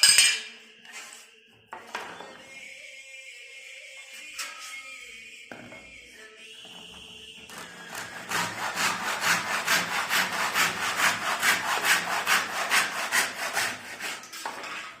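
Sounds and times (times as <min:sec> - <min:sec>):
hand saw cutting wood: 0:07.5 - 0:15.0.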